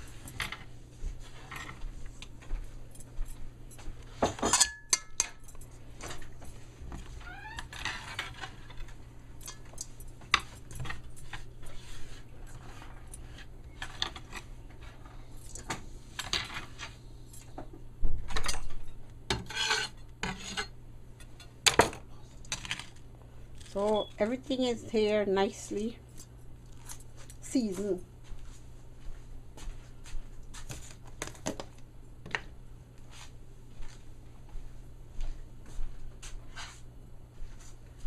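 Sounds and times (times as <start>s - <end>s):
utensils clinking and scraping dishes: 4.2s - 6.4s.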